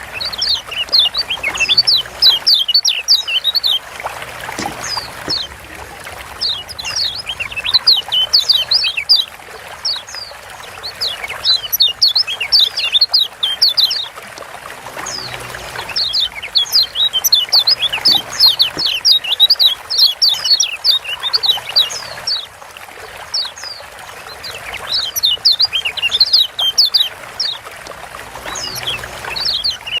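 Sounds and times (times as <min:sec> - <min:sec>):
bird chirping high thin calls: 0:00.0 - 0:03.8, 0:04.4 - 0:05.8, 0:06.4 - 0:09.3, 0:15.1 - 0:22.4, 0:24.6 - 0:27.6.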